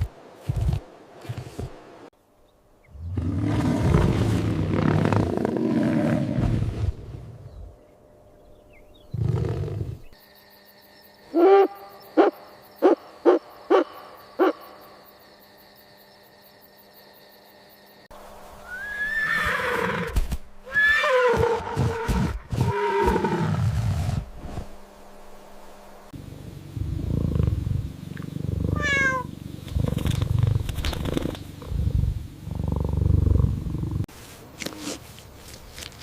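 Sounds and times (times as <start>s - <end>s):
animal calls gliding up and down: 18.6s - 20.1s
low rough rumbling animal calls: 26.6s - 34.1s.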